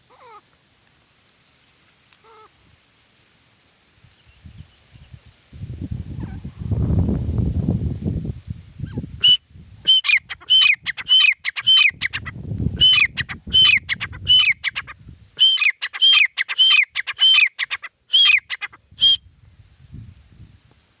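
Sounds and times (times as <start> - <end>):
francolin calling: 0.0 - 0.6, 8.8 - 19.3.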